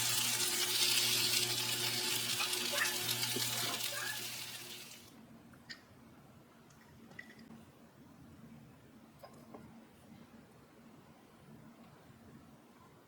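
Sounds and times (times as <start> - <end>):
kitchen tap running into sink: 0.0 - 5.1.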